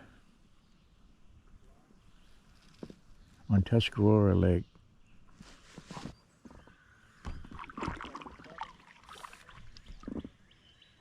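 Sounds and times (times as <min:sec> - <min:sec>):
paddle splashing in water: 0:07.3 - 0:10.4.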